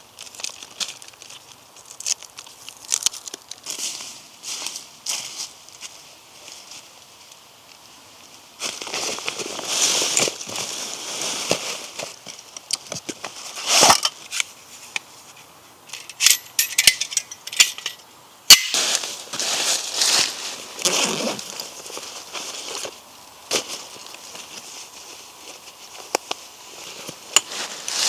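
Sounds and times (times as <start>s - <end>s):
rustling: 8.6s - 28.0s
clinks with faint ring: 15.9s - 18.8s.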